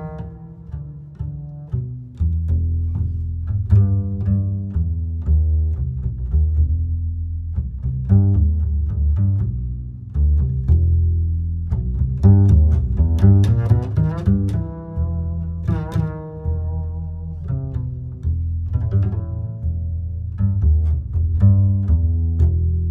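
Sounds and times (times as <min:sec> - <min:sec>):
plucked guitar music: 0:00.0 - 0:06.3, 0:11.7 - 0:22.9.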